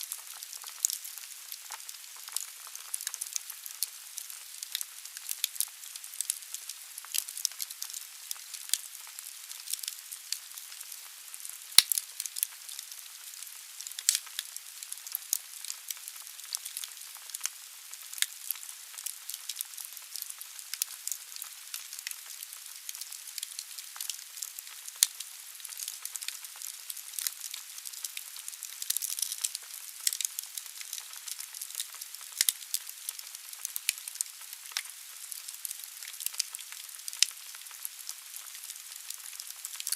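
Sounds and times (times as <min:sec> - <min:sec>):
logs crackling and popping: 0:00.0 - 0:39.9.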